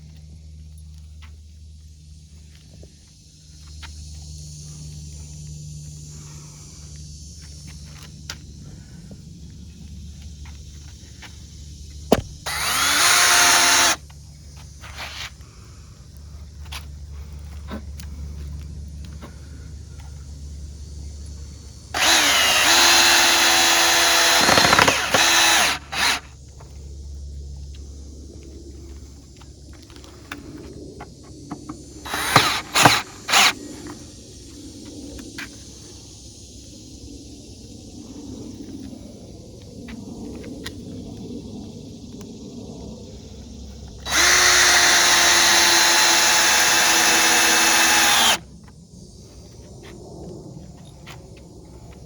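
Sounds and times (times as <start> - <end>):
electric drill driving screw: 12.1 - 14.0, 21.9 - 26.3, 31.6 - 33.6, 44.0 - 48.4.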